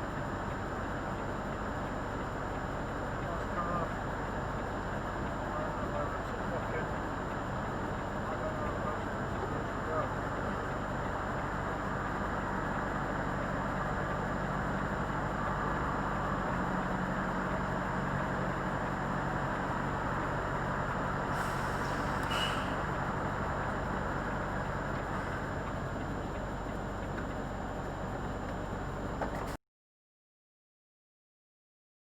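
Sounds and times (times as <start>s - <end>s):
lorry diesel engine running: 0.0s - 29.6s
short air hiss: 21.3s - 22.8s.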